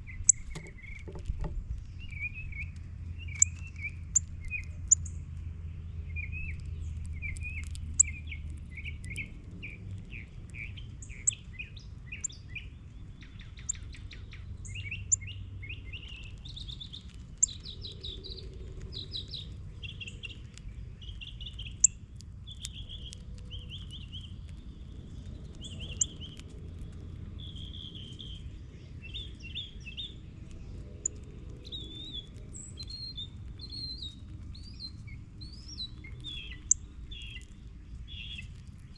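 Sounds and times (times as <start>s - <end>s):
low steady rumble: 0.0s - 38.9s
small birds chirping: 0.0s - 38.9s.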